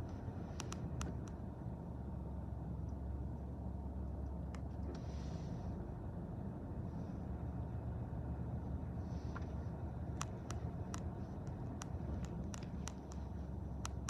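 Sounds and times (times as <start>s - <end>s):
sharp clicks: 0.0s - 1.4s, 10.0s - 14.0s.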